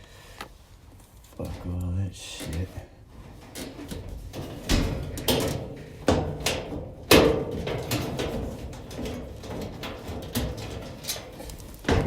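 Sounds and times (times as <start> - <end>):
light clicks and rattles: 0.4 - 12.0
dryer parts knocking: 3.2 - 12.0.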